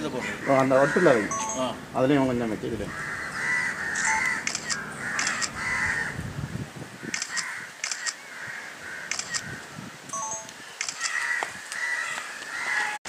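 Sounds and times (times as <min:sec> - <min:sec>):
birds short harsh calls: 0:02.8 - 0:06.2, 0:07.0 - 0:09.7, 0:10.6 - 0:13.0.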